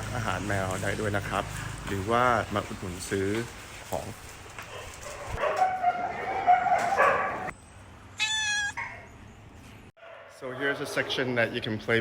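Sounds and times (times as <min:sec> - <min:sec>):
high-pitched animal cry: 0:08.2 - 0:09.1
pet animals calling: 0:08.2 - 0:09.2.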